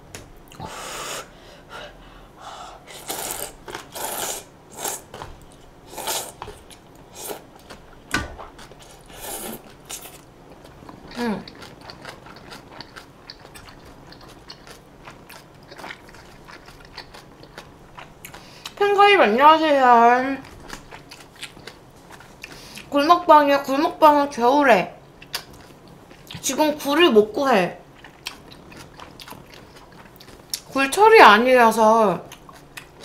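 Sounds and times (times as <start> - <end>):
chewing and biting food: 3.0 - 18.8, 20.4 - 22.9, 25.2 - 26.4, 28.0 - 30.7.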